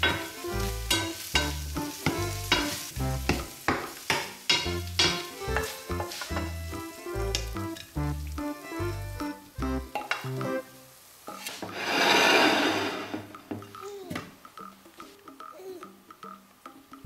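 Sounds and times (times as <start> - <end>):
background music with beat: 0.0 - 11.8, 13.3 - 17.0
shrimps sizzling in frying pan: 0.0 - 13.9.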